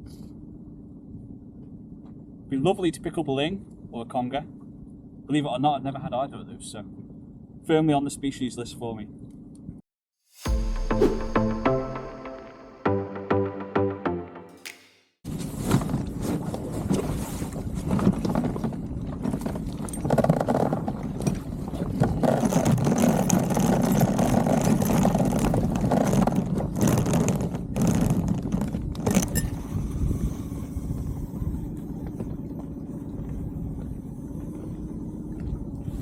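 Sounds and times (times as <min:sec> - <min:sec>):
sharp knocks: 0:14.5 - 0:15.1.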